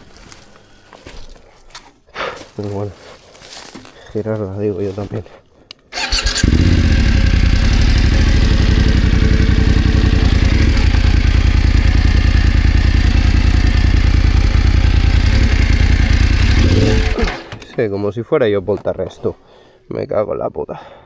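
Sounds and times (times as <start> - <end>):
motorcycle engine idling: 6.0 - 17.8.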